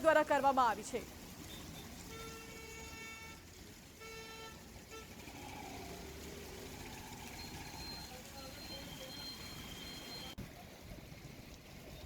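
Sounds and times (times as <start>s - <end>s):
street noise: 0.0s - 12.0s
vehicle horn honking: 2.1s - 3.4s, 4.0s - 5.3s.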